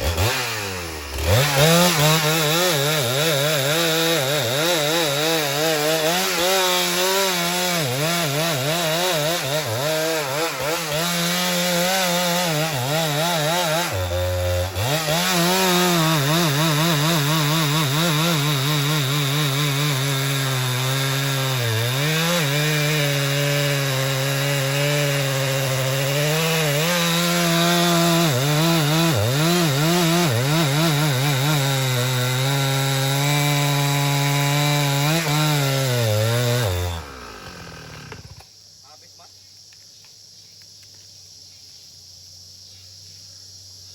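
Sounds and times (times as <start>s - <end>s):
chainsaw cutting wood: 0.0s - 38.5s.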